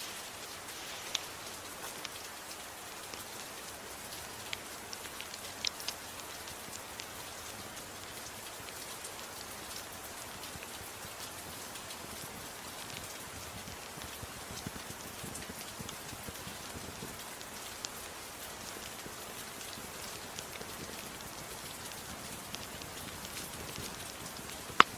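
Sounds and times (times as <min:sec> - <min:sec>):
steady gentle rain: 0:00.0 - 0:24.9
wood fire crackling: 0:00.0 - 0:24.9
sharp fire pops: 0:22.5 - 0:24.9.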